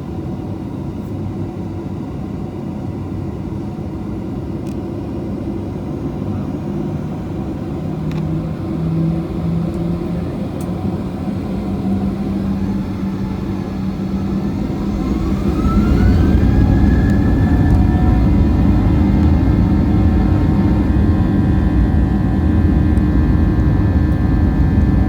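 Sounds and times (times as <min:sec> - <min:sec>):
jet engine rumble in cabin: 0:00.0 - 0:25.0
low hum rising in pitch: 0:07.9 - 0:25.0.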